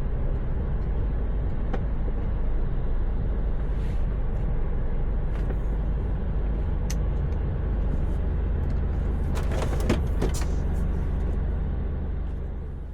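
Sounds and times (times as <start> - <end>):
truck engine rumble: 0.0 - 12.9.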